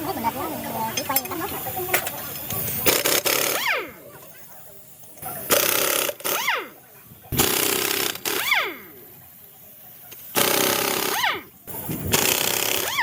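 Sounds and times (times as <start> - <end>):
power tool whining: 10.4 - 13.0.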